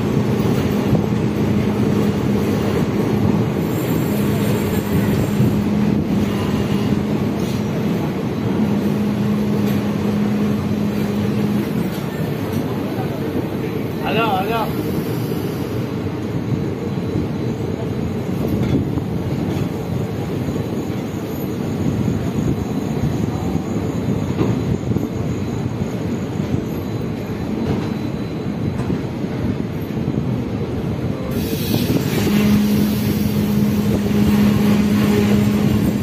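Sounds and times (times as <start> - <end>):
train wheels rumbling: 0.0 - 36.0
hiss: 31.3 - 34.0.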